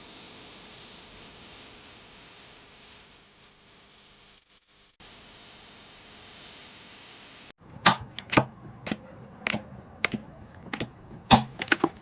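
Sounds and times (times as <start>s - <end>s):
sharp clicks: 7.8s - 12.0s.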